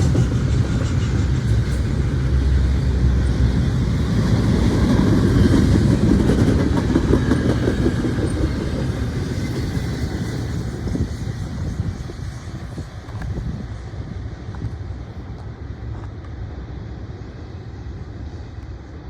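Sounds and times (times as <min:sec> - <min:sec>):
steel wheels clattering on rails: 0:00.0 - 0:13.8
freight train cars rumbling: 0:00.0 - 0:19.0.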